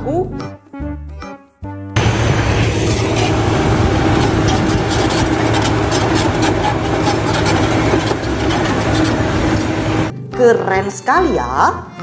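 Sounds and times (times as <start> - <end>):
bulldozer engine running: 2.0 - 10.1.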